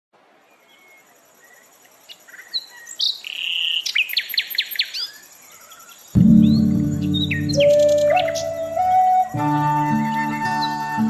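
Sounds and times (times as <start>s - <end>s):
songbird singing: 0.4s - 11.0s.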